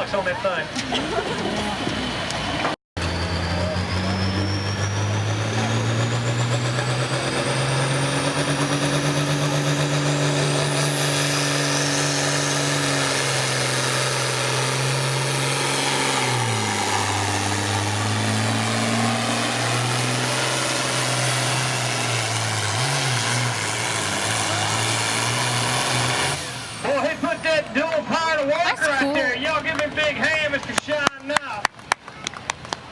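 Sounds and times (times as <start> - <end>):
tractor engine running under load: 1.7 - 27.0.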